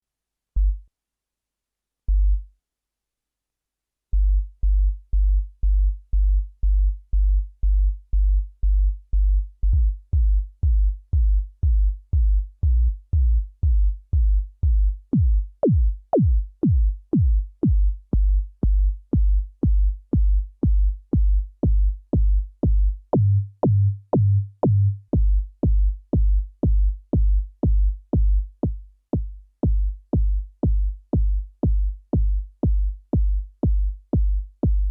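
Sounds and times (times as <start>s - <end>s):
electronic kick drum: 9.7s - 34.9s.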